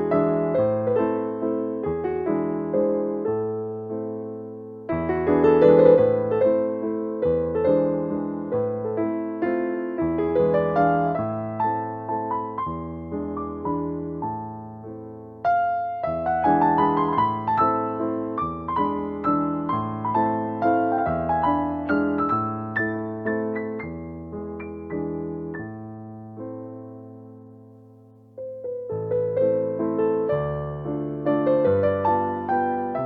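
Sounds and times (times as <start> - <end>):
gentle piano music: 0.0 - 33.0.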